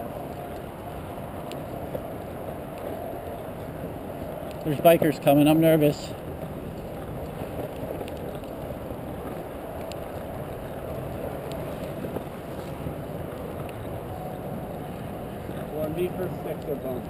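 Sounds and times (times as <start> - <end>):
board wheels rolling on asphalt: 0.0 - 17.0
wind noise on microphone: 0.0 - 17.0
faint clicks: 6.1 - 17.0.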